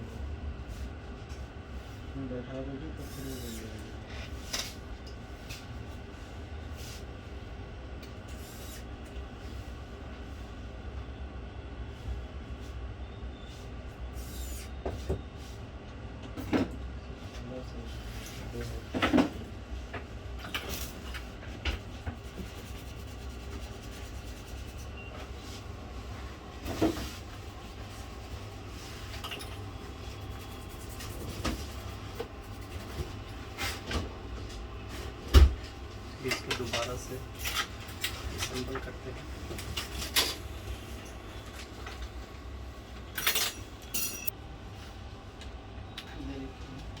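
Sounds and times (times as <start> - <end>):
steady low hum: 15.5 - 47.0
ringing metallic clink: 43.2 - 44.3.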